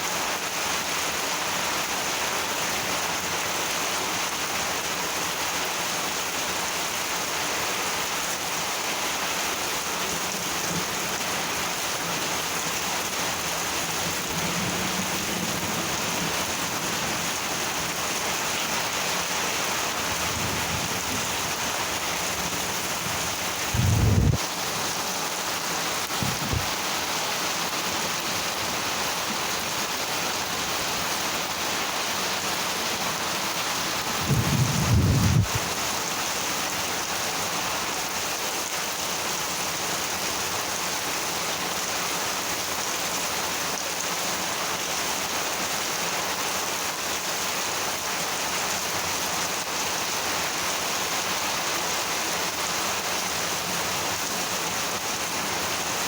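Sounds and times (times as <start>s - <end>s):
heavy rain: 0.0s - 56.0s
low rumble of thunder: 23.2s - 24.4s, 34.2s - 35.6s.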